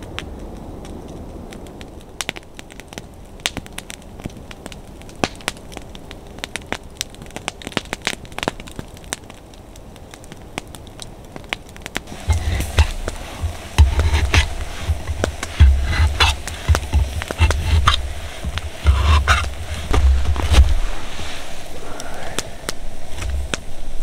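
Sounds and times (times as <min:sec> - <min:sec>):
wood fire crackling: 0:00.0 - 0:24.0
low bumping and rustling: 0:12.1 - 0:21.8.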